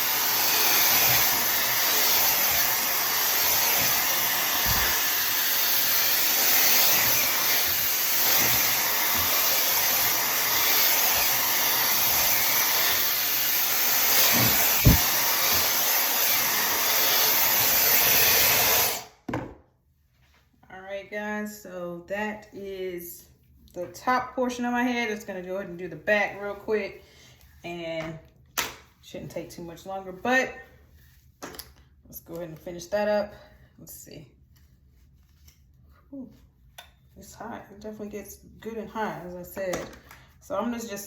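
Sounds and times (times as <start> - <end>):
hair dryer running: 0.0 - 19.2.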